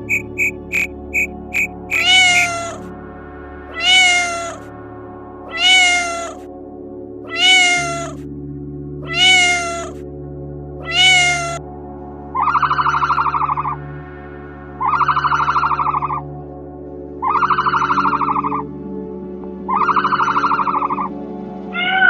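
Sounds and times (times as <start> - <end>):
animal call: 0.0 - 2.9, 3.8 - 4.6, 5.5 - 6.4, 7.3 - 8.2, 9.1 - 10.0, 10.8 - 11.6, 21.8 - 22.0
low background drone: 0.0 - 22.0.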